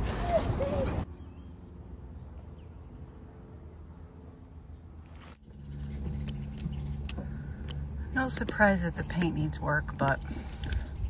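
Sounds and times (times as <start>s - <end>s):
cricket chirping: 1.1s - 8.6s
low steady hum: 1.1s - 11.0s.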